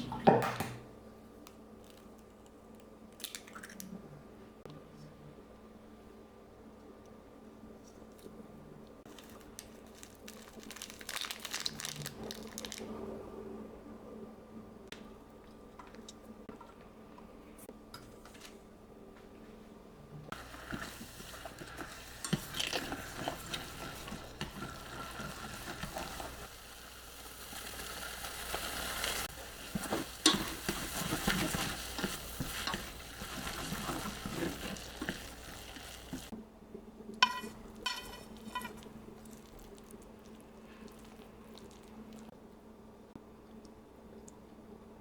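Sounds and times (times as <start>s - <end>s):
food sizzling in a frying pan: 20.3s - 36.3s
utensil scraping a pan: 20.4s - 26.5s, 28.6s - 36.3s, 37.2s - 38.9s.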